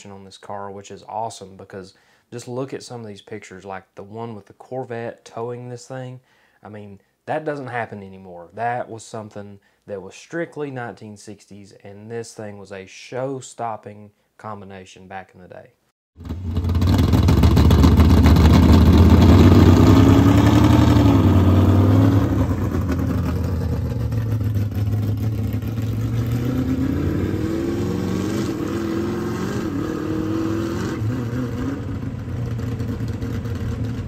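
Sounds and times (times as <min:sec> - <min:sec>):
car engine revving: 0:16.2 - 0:34.0.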